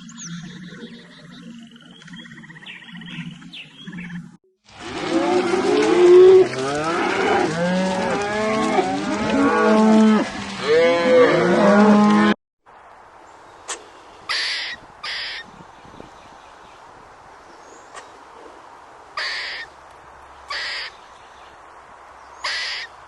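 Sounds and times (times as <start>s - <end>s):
cattle mooing: 4.8s - 12.4s.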